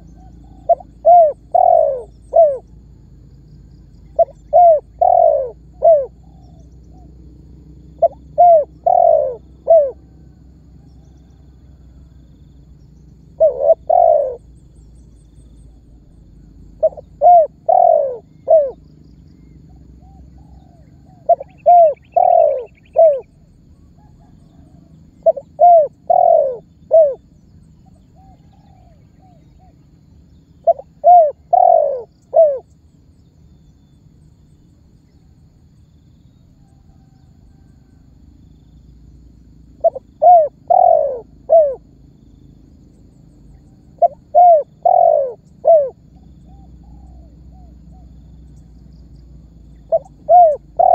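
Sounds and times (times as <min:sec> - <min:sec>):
dove cooing: 0:00.0 - 0:03.0, 0:04.0 - 0:12.2, 0:12.9 - 0:14.6, 0:15.6 - 0:18.9, 0:19.7 - 0:30.0, 0:30.6 - 0:32.8, 0:36.6 - 0:38.0, 0:39.7 - 0:42.1, 0:43.4 - 0:50.9.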